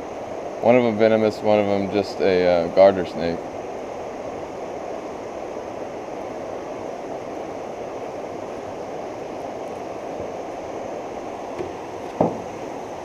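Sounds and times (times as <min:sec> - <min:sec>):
floodwater rushing in a creek: 0:00.0 - 0:13.0
light knock: 0:11.6 - 0:12.5.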